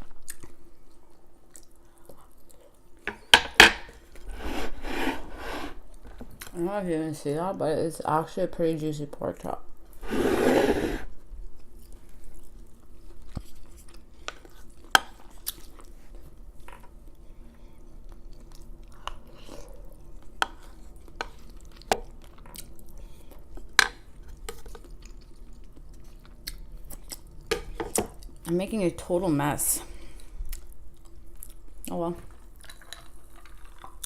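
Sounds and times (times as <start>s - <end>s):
chewing food: 0.0s - 3.0s, 11.4s - 28.5s, 30.1s - 34.0s.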